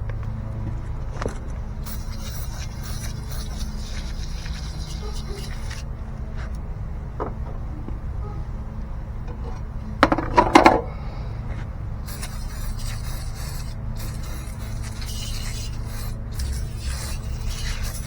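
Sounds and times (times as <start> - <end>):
steady low hum: 0.0 - 18.0
hissy scrubbing: 1.8 - 5.9, 12.0 - 18.0.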